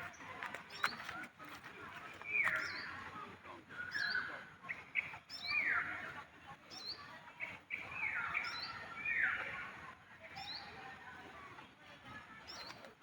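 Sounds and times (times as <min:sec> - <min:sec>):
high bird chirps: 0:02.2 - 0:03.0, 0:06.7 - 0:09.5.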